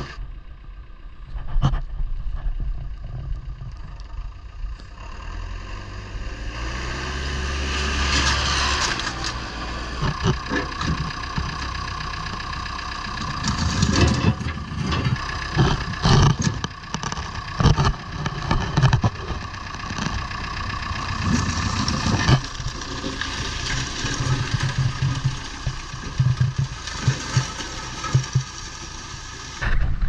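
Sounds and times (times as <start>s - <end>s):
motor running: 8.2s - 29.8s
knocks and clatter: 10.0s - 12.5s, 13.1s - 30.0s.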